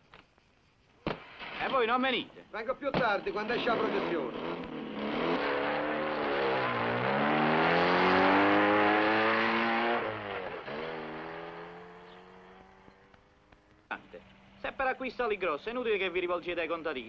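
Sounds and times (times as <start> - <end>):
car engine accelerating: 3.2 - 13.3.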